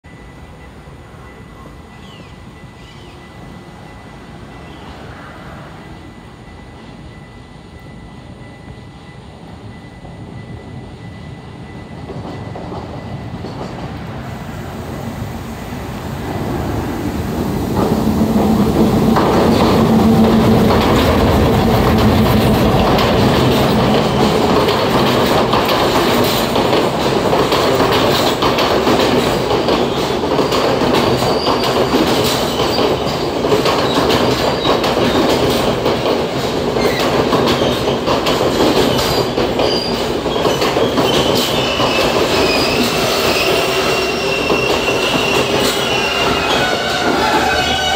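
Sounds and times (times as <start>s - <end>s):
locomotive engine drone: 13.3s - 27.4s
coaches rattling over rail joints: 15.0s - 47.9s
high wheel squeal: 29.9s - 33.0s, 38.8s - 47.9s.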